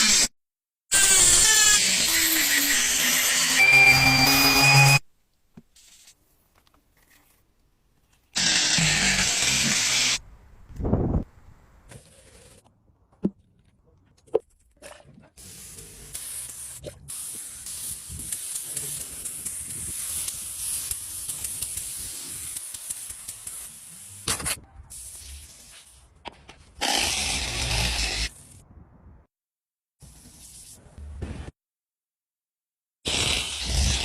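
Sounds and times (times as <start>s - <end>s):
spraying hiss: 15.4s - 24.3s.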